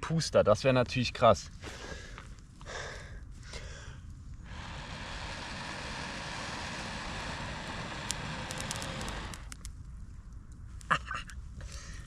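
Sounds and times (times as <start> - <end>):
air blown into tinder: 3.6 - 9.7
straw crackling: 3.6 - 10.6.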